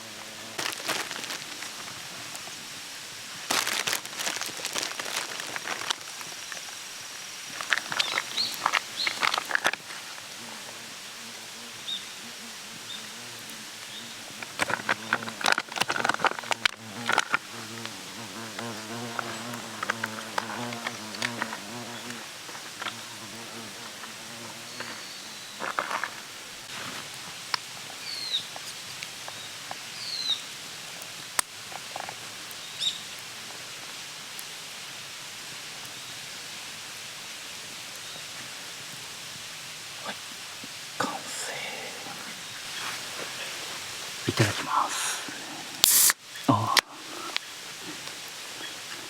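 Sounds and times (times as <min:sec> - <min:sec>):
fly buzzing: 0:00.0 - 0:01.8, 0:07.5 - 0:26.3, 0:41.0 - 0:49.0
steady hiss: 0:00.0 - 0:49.0.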